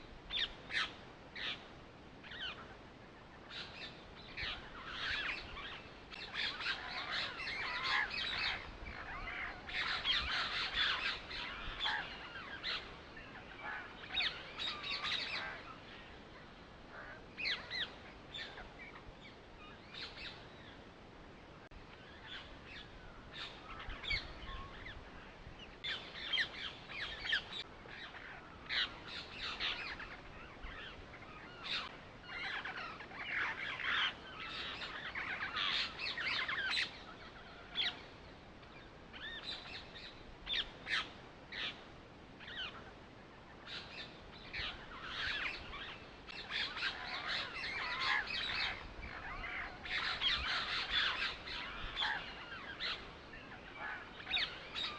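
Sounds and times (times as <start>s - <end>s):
birds chirping: 0.0s - 54.9s
bird squawks: 3.6s - 15.8s, 43.7s - 54.9s.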